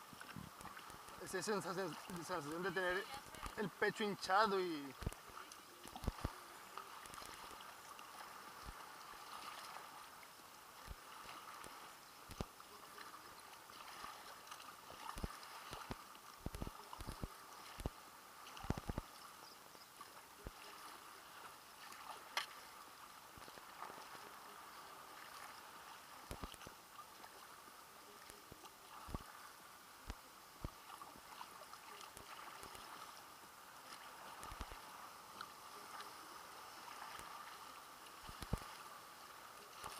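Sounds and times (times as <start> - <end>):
faint wash of water: 0.0 - 39.9
soft knocks and splashes: 36.8 - 38.8.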